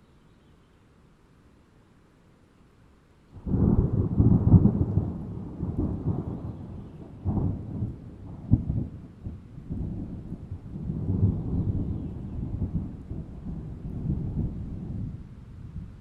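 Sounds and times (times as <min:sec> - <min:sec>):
thunder clap and rumble: 0:03.4 - 0:16.0.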